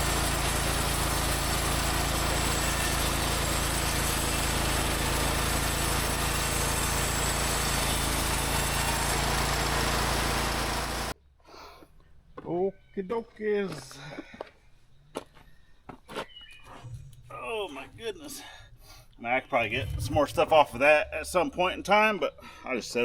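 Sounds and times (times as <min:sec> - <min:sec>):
bandsaw mill running: 0:00.0 - 0:11.2.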